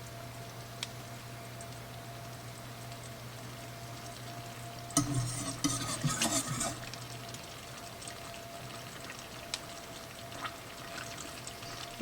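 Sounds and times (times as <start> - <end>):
steady low hum: 0.0 - 9.0
spoon scraping in a saucepan: 5.0 - 7.0.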